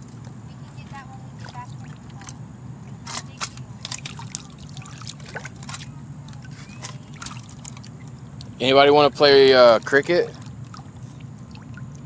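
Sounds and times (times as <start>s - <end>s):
creek water trickling: 1.3s - 12.0s
light clicks and splashes: 1.4s - 2.4s, 3.0s - 8.6s, 9.7s - 12.0s.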